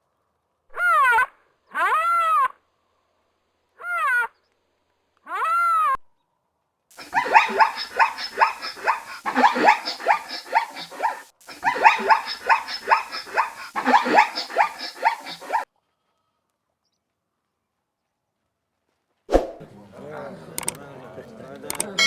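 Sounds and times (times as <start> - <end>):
dog yapping: 7.0 - 15.6.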